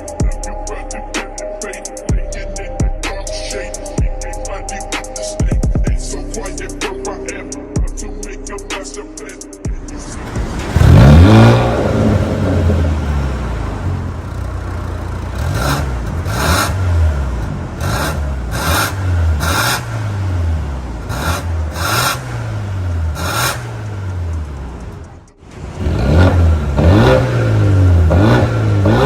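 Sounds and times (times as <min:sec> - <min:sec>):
exhaust crackles: 0:09.8 - 0:29.0
car engine starting and revving: 0:09.9 - 0:29.0.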